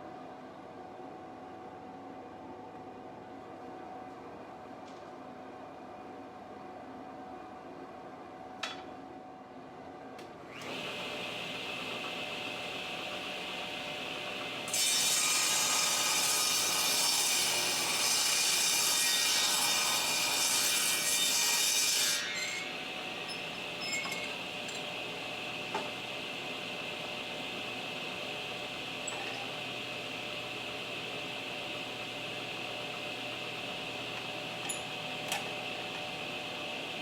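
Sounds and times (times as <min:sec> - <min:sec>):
saw cutting through lumber: 0:14.3 - 0:24.7.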